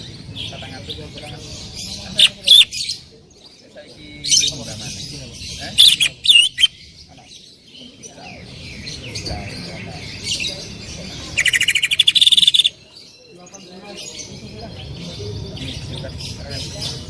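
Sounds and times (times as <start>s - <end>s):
bird singing loudly: 2.1s - 3.0s, 5.6s - 6.9s, 11.3s - 12.8s.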